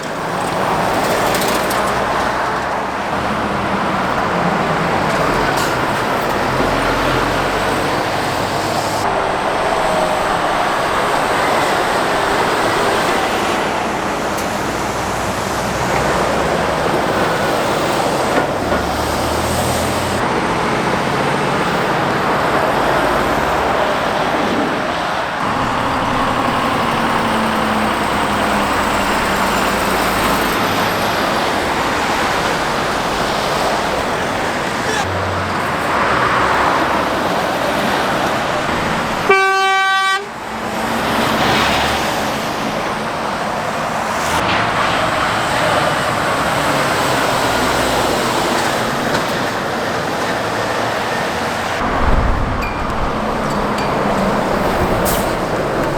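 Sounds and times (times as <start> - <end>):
heavy road traffic passing: 0.0 - 55.9
vehicle horn blast: 39.2 - 40.4.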